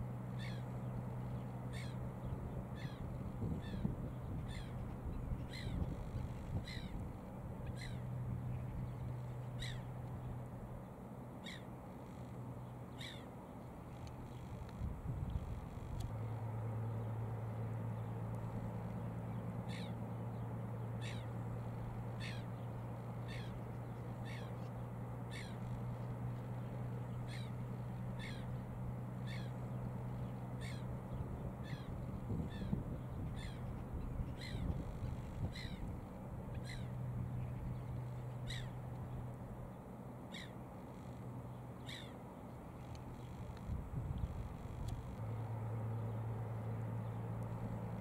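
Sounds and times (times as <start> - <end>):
steady low hum: 0.0 - 48.0
bird calling: 0.3 - 7.0, 7.6 - 10.4, 11.4 - 12.3, 12.9 - 13.3, 17.9 - 39.3, 40.3 - 42.2.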